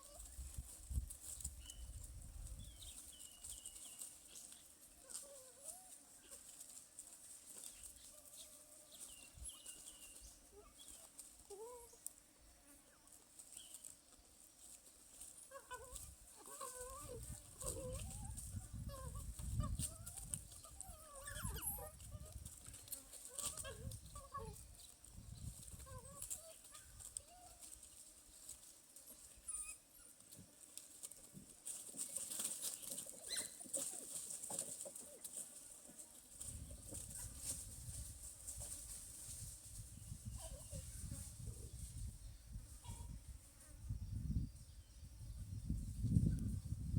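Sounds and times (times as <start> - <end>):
wild dogs yelping and whistling: 7.9 - 12.0, 15.5 - 22.3, 29.1 - 30.2, 32.2 - 35.3.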